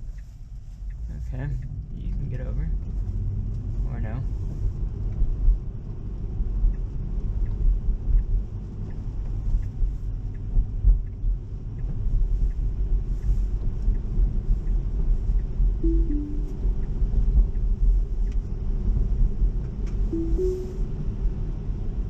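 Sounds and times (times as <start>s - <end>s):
road and tyre rumble: 0.0s - 15.8s, 16.5s - 20.1s
turn signal ticking: 0.0s - 20.9s
two-note falling chime: 15.8s - 16.6s, 20.2s - 20.9s.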